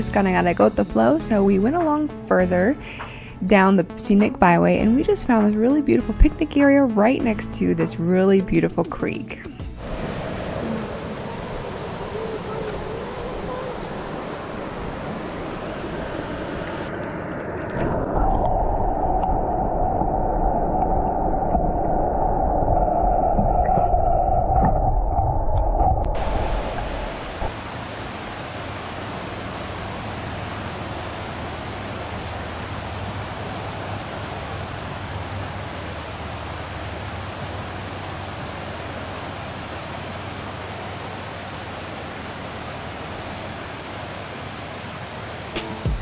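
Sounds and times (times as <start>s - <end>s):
creek rushing over rocks: 9.8s - 16.8s, 26.1s - 46.0s
loud low rumble: 9.8s - 27.6s.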